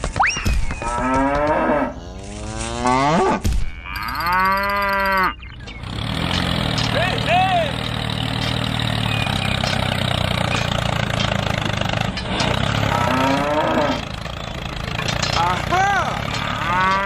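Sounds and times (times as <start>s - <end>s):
drawn-out pitched call: 3.7s - 10.9s
low engine hum: 5.3s - 17.0s.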